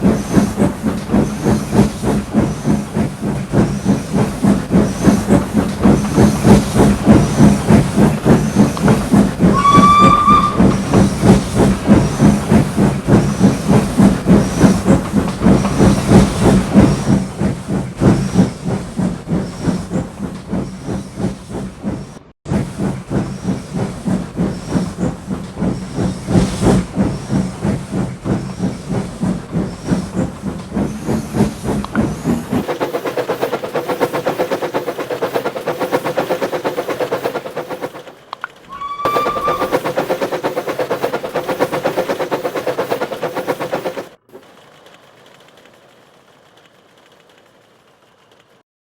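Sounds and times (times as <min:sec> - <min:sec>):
steam locomotive chuffing: 0:00.0 - 0:48.6
train whistle toot: 0:09.5 - 0:11.0, 0:38.7 - 0:39.9
light regular squeak: 0:38.6 - 0:40.3.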